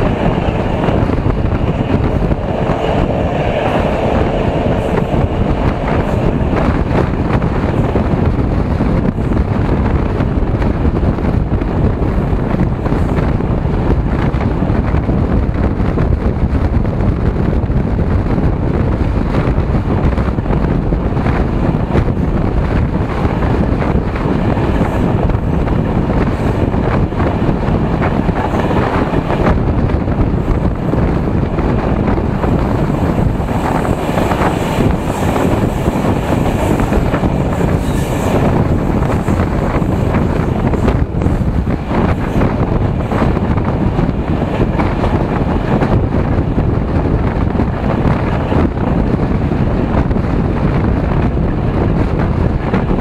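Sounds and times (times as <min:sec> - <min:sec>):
train carriage running on rails: 0:00.0 - 0:53.0
wind buffeting microphone: 0:00.0 - 0:53.0.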